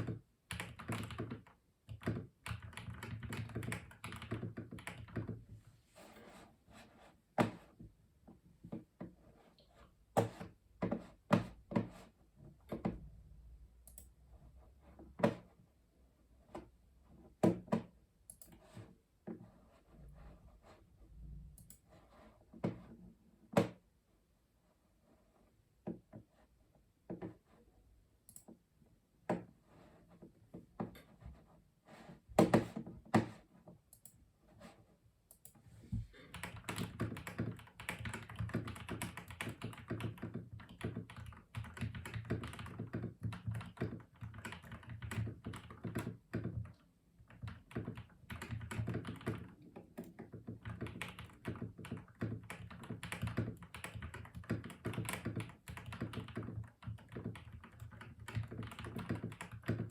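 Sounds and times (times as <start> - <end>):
mechanical keyboard typing: 0.0 - 5.4, 36.2 - 59.9.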